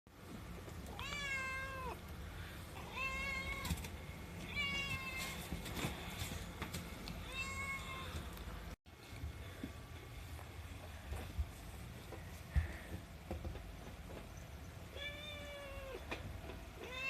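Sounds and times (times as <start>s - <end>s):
cat meowing: 0.9s - 2.0s, 2.8s - 3.8s, 4.4s - 5.4s, 7.3s - 8.2s, 14.9s - 16.0s.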